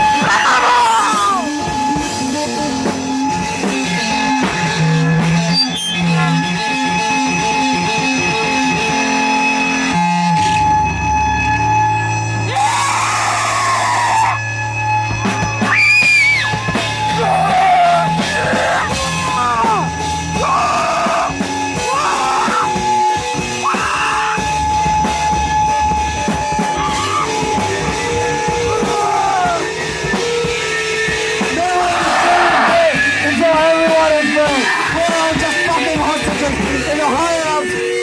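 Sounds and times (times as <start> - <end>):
wordless yelled vocals: 0.0 - 1.6, 12.5 - 14.4, 17.0 - 24.6, 26.6 - 29.8, 31.5 - 37.1
low droning bass: 1.3 - 38.0.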